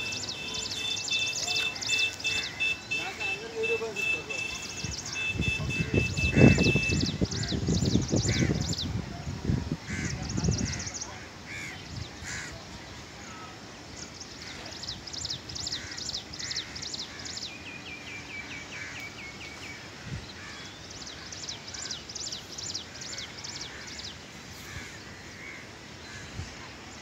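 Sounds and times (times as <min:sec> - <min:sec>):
fast ticking bird trill: 0:00.0 - 0:08.2
birds chirping: 0:00.0 - 0:27.0
steady outdoor hiss: 0:00.0 - 0:27.0.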